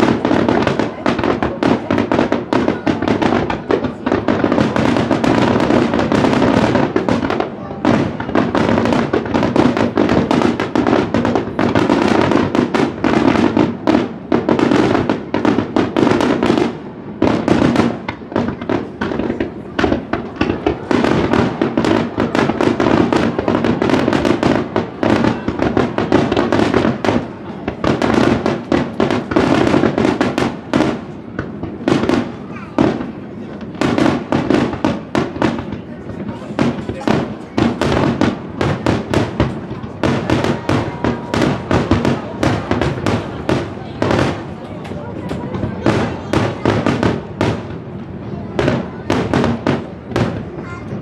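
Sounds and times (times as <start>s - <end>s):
fireworks crackling: 0.0s - 51.0s
fireworks launch booms and bursts: 0.0s - 51.0s.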